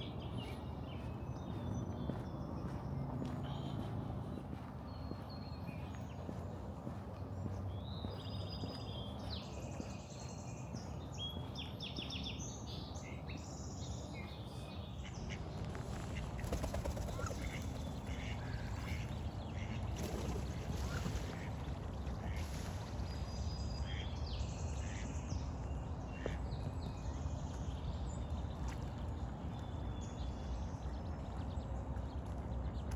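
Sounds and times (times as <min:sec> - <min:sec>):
wild birds chattering: 0:00.0 - 0:24.2
low outdoor rumble: 0:00.0 - 0:32.9.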